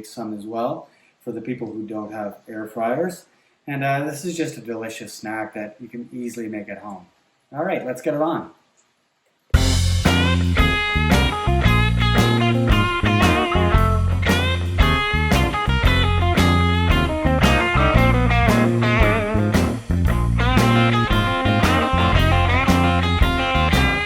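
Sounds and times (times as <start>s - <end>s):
blues-rock music: 9.6s - 24.0s.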